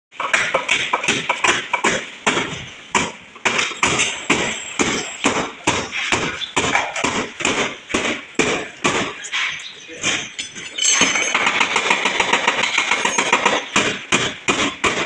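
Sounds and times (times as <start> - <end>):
hammer striking sheet metal: 0.2 - 9.2.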